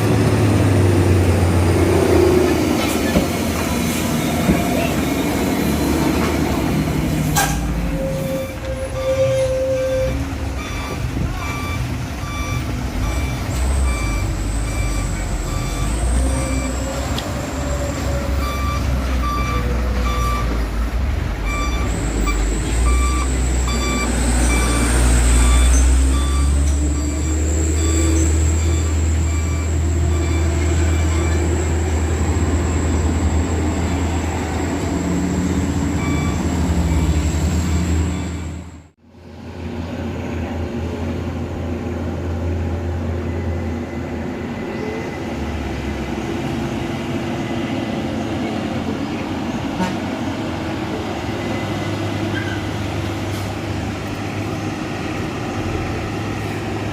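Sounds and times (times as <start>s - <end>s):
truck engine running hard: 0.0s - 9.1s, 10.1s - 56.9s
reversing beeper beeps: 10.6s - 17.0s, 18.3s - 20.6s, 21.4s - 31.7s, 36.0s - 37.2s.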